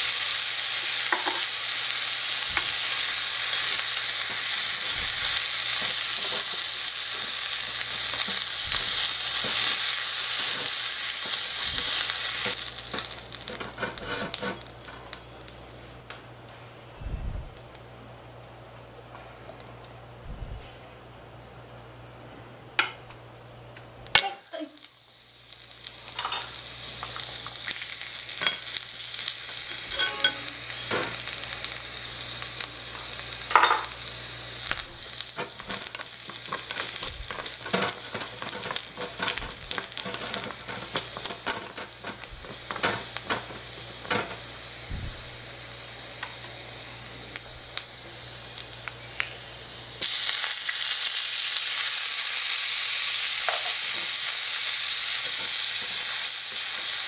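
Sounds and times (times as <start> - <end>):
garlic sizzling in hot oil: 0.0 - 16.0, 24.0 - 57.0
wooden spatula scraping metal pan: 13.4 - 14.7, 35.4 - 43.5.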